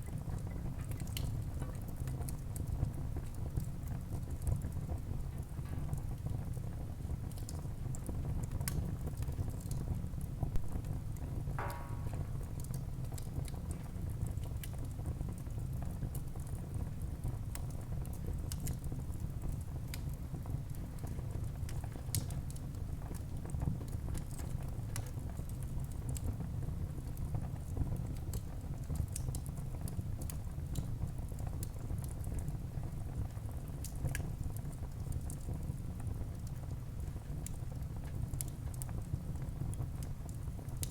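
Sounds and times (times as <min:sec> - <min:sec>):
wood crackling and popping: 0:07.0 - 0:26.0
fire rumbling: 0:10.5 - 0:13.8.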